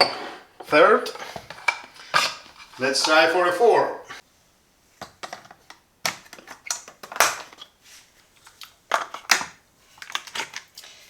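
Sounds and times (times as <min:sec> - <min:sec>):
plastic parts scraping: 0:01.1 - 0:03.4.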